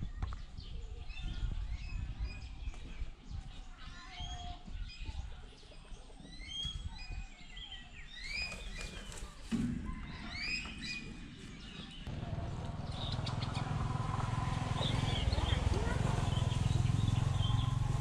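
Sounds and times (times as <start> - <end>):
small birds chirping: 0.0 - 18.0
steady low rumble: 12.0 - 18.0.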